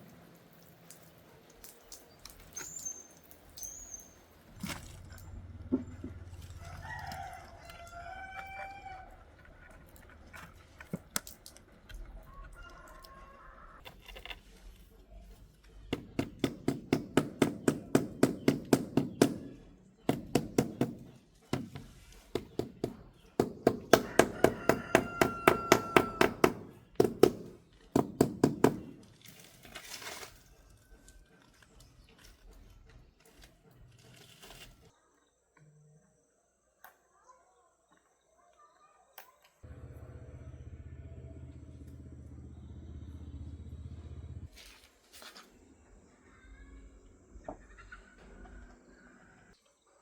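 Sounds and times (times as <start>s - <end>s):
rooster crowing: 6.5s - 9.2s, 12.2s - 13.8s, 24.0s - 26.5s.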